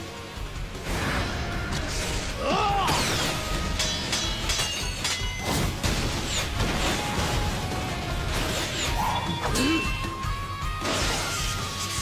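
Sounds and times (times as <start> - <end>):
dramatic background music: 0.0 - 12.0.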